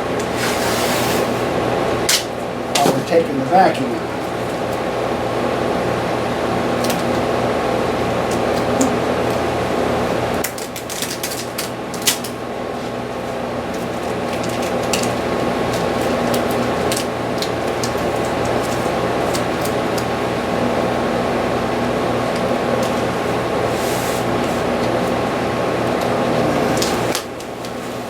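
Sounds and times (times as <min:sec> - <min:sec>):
machinery hum and hiss: 0:00.0 - 0:10.4, 0:11.6 - 0:28.0.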